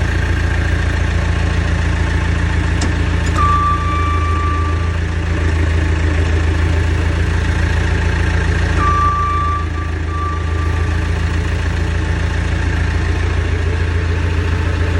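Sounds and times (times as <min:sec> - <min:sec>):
diesel engine idling: 0:00.0 - 0:14.9
high beep tone: 0:03.3 - 0:05.2, 0:08.8 - 0:11.4.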